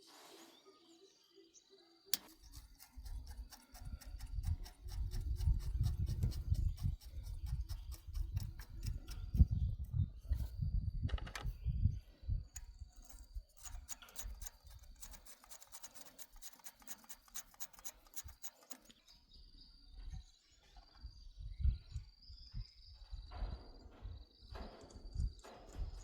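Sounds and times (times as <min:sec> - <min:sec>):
rapid scraping strokes: 0:02.2 - 0:09.5, 0:12.6 - 0:19.0.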